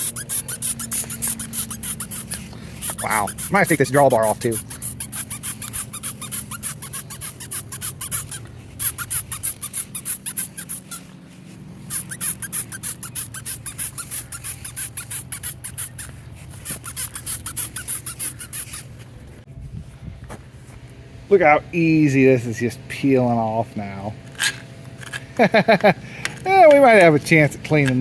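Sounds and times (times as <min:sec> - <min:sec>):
spray bottle hissing sprays: 0:00.0 - 0:11.1, 0:11.9 - 0:18.9.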